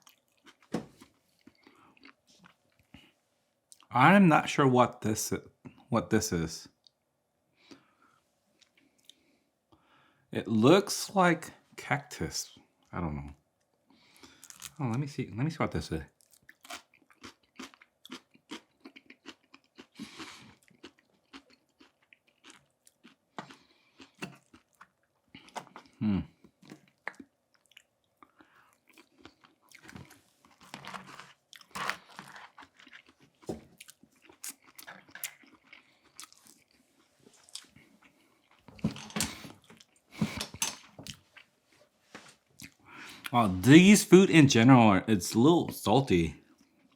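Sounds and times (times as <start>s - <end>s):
chewing and crunching food: 0.0s - 3.9s, 7.6s - 9.4s, 13.7s - 14.8s, 16.1s - 41.6s, 42.5s - 43.4s, 46.4s - 46.9s.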